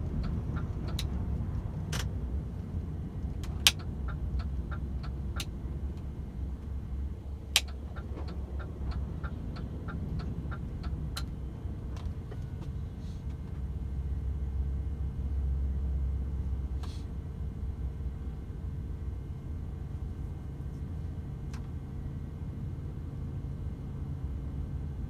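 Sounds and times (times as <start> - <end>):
truck engine and road rumble: 0.0 - 25.0
sharp clicks: 7.6 - 8.1.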